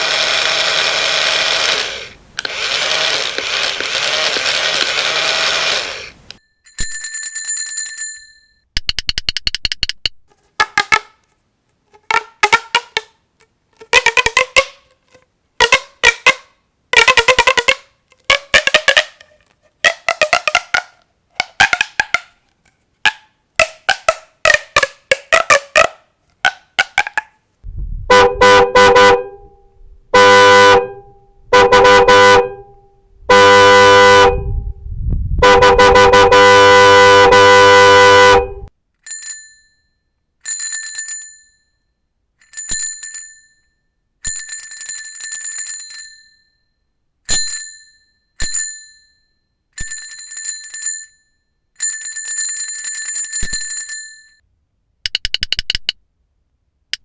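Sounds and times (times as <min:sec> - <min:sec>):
small bell ringing in trills: 0:06.4 - 0:08.7, 0:39.1 - 0:54.4
horn honking long blasts: 0:28.1 - 0:34.7, 0:35.4 - 0:38.7.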